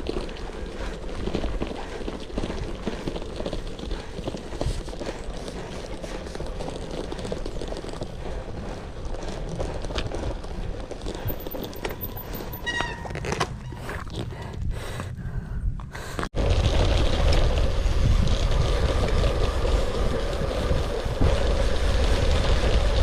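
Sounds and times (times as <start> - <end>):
bike tyres crunching over stones: 0.0 - 14.5, 16.2 - 23.0
wind rumbling on microphone: 0.0 - 23.0
high squeak: 12.6 - 13.8.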